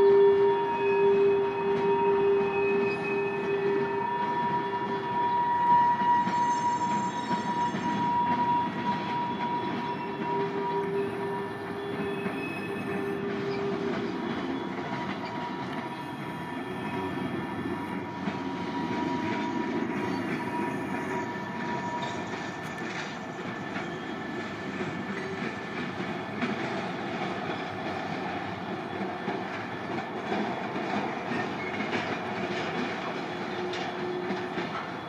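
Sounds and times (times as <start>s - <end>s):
train wheels clicking and rumbling: 0.0s - 35.0s.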